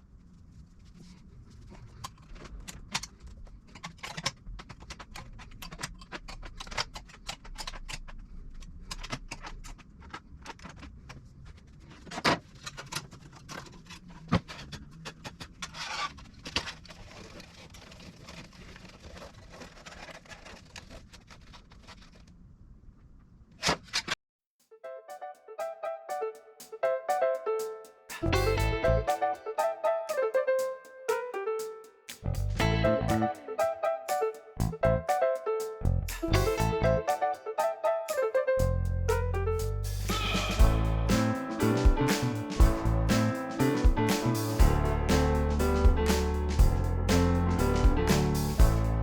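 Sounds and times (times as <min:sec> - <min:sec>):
metallic clicks and scrapes on sheet: 0:00.8 - 0:22.4.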